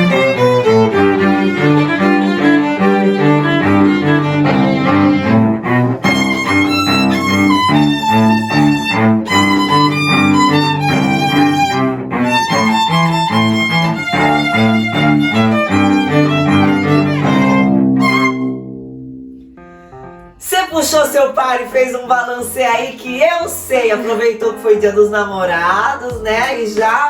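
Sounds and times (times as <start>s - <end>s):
violin and cello duet: 0.0s - 18.7s.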